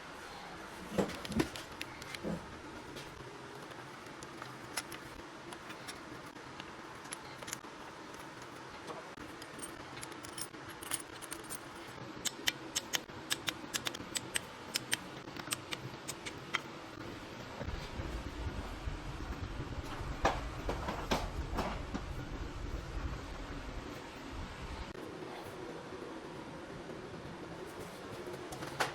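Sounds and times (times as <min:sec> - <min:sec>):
steady low hum: 0:00.0 - 0:28.5
metallic tool clicks: 0:12.2 - 0:16.4.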